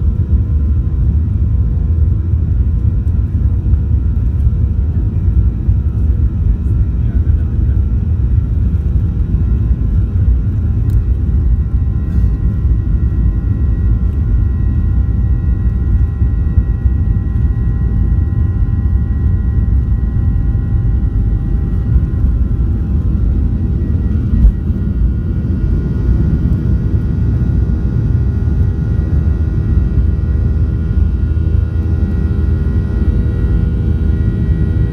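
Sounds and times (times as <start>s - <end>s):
low cabin rumble: 0.0s - 34.9s
whining engine tones: 11.7s - 34.9s.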